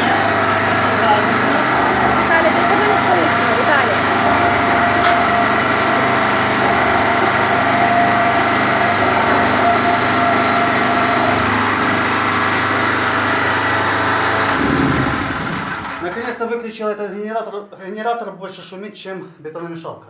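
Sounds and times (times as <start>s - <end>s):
whining tone: 0.0s - 16.0s
generator engine running: 0.0s - 16.4s.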